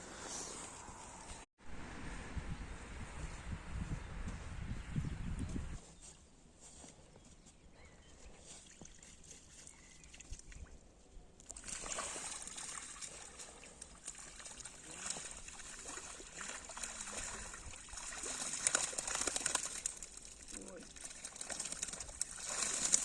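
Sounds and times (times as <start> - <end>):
water trickling and splashing: 11.4 - 23.0.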